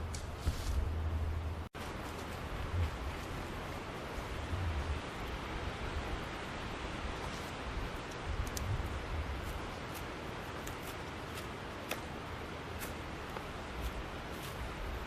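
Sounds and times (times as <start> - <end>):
steady rushing hiss: 1.8 - 15.0
wind rumble on microphone: 2.4 - 9.8.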